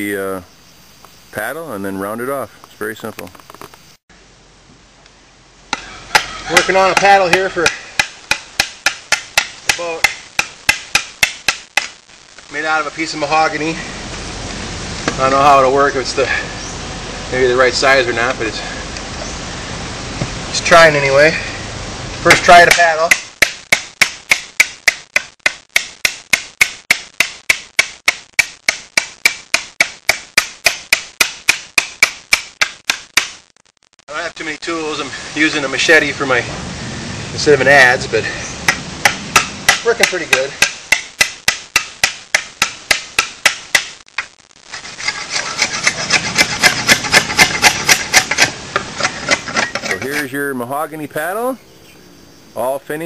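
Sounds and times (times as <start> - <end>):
machete chopping wood: 5.7 - 12.0, 22.3 - 33.4, 38.7 - 44.0, 45.8 - 50.0
blade shaving wood: 44.3 - 50.3.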